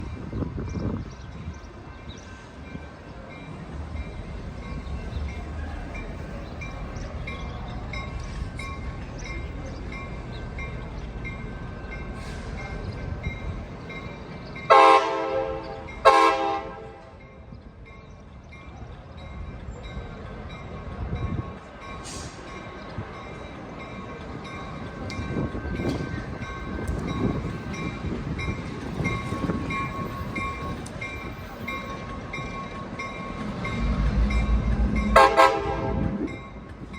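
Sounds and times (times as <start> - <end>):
passing train rumble: 0.0 - 36.9
train horn blasts: 14.7 - 17.2, 35.1 - 36.3.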